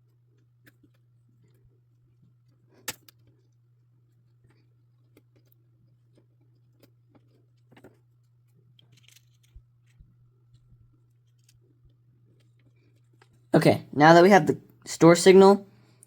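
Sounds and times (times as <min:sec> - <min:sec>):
wires clicking into breadboard: 0:02.8 - 0:03.3.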